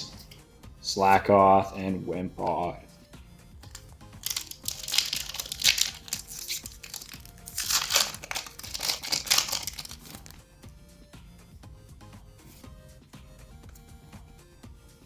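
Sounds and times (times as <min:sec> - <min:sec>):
music playing: 0:00.0 - 0:15.0
foil wrapper tearing and crinkling: 0:03.6 - 0:10.4.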